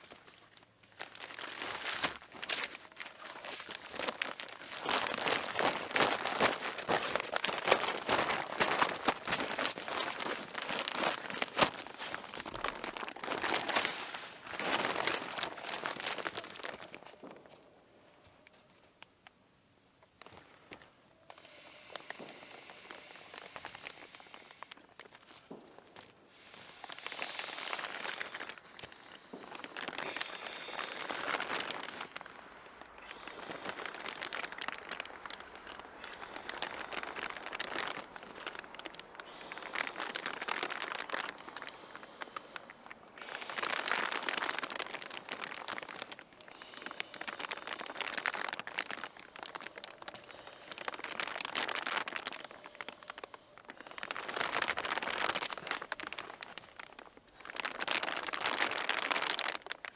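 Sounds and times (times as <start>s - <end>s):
crinkling and rustling: 0.0s - 59.9s.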